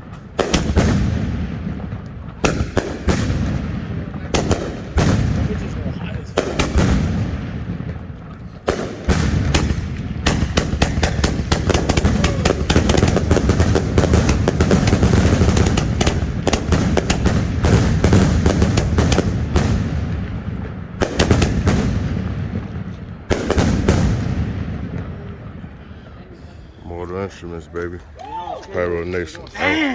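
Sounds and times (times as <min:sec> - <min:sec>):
firework barrage bangs: 0:00.0 - 0:25.8.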